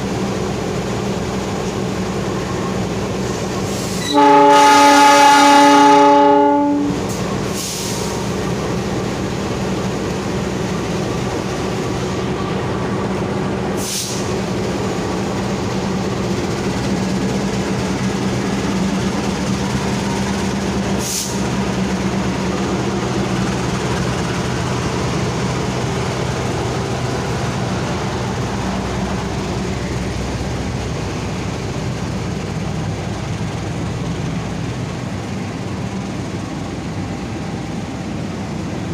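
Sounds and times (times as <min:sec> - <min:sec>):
train rumbling by: 0:00.0 - 0:38.9
train horn blast: 0:04.0 - 0:07.1
short hisses: 0:07.5 - 0:08.2, 0:13.8 - 0:14.4, 0:21.0 - 0:21.4.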